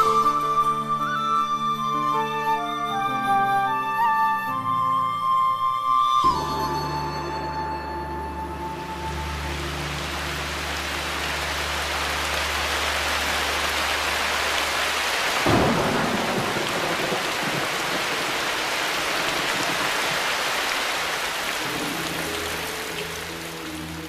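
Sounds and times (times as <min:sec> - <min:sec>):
heavy rain falling: 0:00.0 - 0:02.8, 0:06.2 - 0:24.0
thunderclap: 0:15.4 - 0:20.2.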